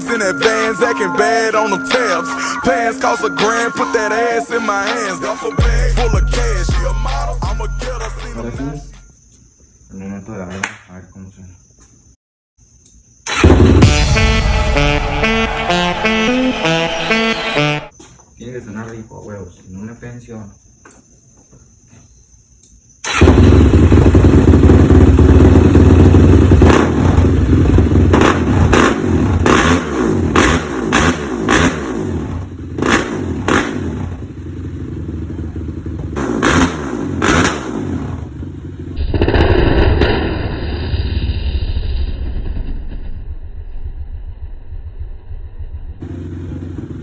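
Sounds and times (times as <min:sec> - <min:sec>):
quad engine revving: 0:13.3 - 0:14.7, 0:23.1 - 0:40.4.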